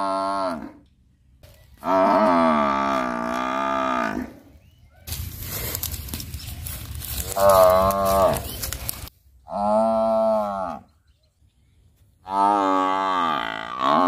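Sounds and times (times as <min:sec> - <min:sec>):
buffalo lowing: 0:07.0 - 0:10.9.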